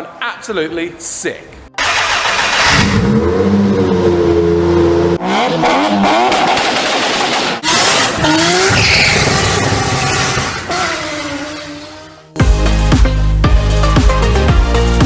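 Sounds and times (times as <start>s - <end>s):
car exhaust revving: 1.8s - 12.3s.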